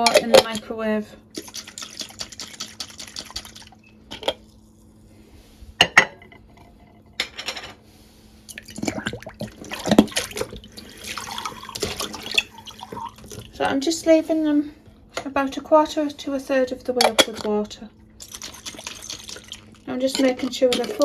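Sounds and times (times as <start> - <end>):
water splashing into glass jars: 1.4 - 4.3, 8.5 - 13.8, 18.2 - 21.0.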